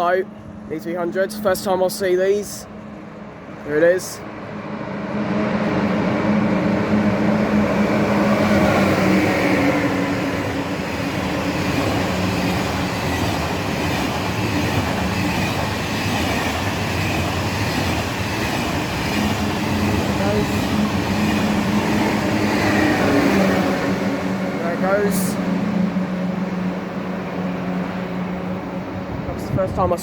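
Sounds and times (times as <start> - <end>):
high-speed train passing: 0.0 - 30.0
droning tones: 23.6 - 29.5.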